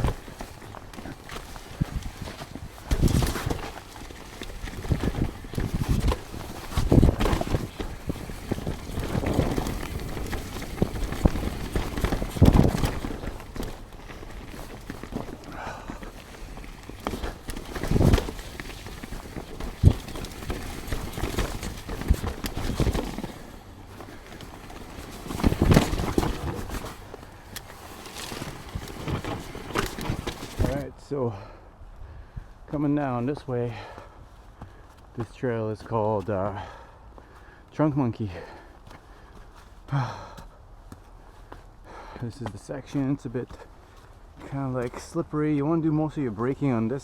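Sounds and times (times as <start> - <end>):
tyres hitting roots and rocks: 0.0 - 30.9
mountain bike clattering: 0.0 - 31.5
heavy bike jolts: 0.0 - 31.6, 33.1 - 47.0.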